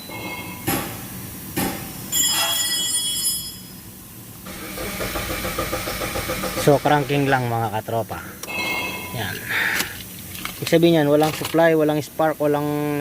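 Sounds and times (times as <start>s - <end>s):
starter motor cranking engine: 4.5s - 7.5s.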